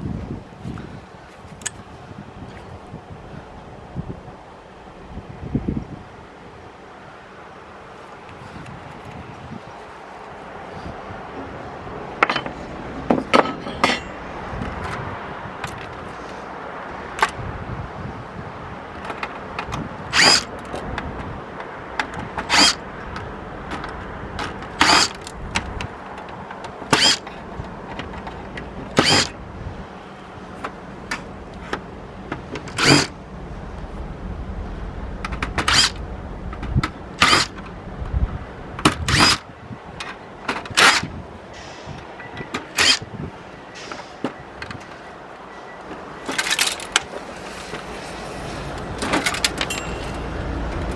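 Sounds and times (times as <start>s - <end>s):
electric screwdriver whirring: 20.1s - 20.5s, 22.5s - 22.8s, 24.8s - 25.2s, 26.9s - 27.2s, 29.0s - 29.3s, 32.8s - 33.1s, 35.7s - 36.0s, 39.1s - 39.4s, 42.8s - 43.0s.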